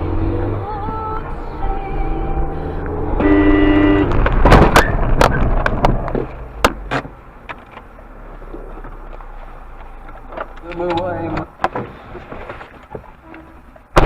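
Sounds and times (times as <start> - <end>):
road noise: 0.0 - 14.0
car horn blaring: 3.1 - 4.2
car crash bangs and crunches: 3.9 - 7.2.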